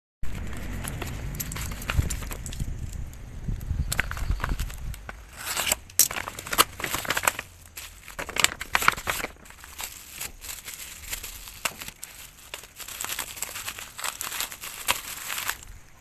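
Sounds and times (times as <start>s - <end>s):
plastic wrapping crinkling: 0.3s - 16.0s.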